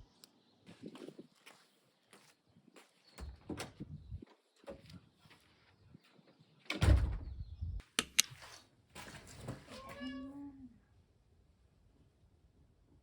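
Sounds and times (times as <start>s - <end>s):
sharp clicks: 7.8s - 8.3s.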